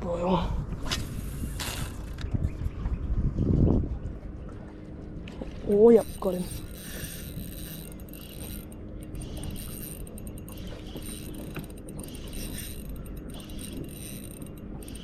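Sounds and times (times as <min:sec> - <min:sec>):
fishing reel gears whirring: 0:01.1 - 0:02.3, 0:05.7 - 0:15.0.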